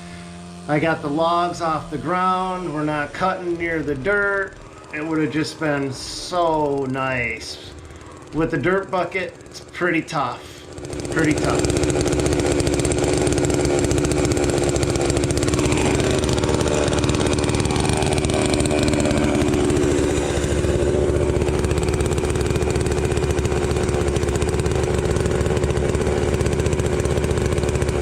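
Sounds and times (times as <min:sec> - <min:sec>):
faint whine: 0:00.0 - 0:09.8
diesel engine running steadily: 0:00.0 - 0:28.0.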